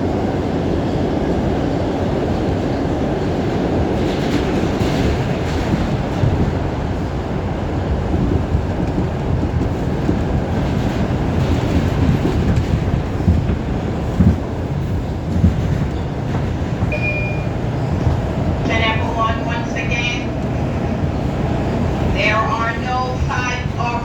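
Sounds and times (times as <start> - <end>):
subway train rumble: 0.0 - 24.0
wheel clatter on rails: 3.3 - 7.2, 7.9 - 19.4.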